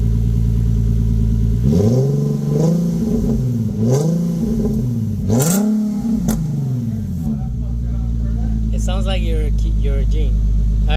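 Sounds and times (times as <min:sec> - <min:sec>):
car engine idling and revving: 0:00.0 - 0:10.9.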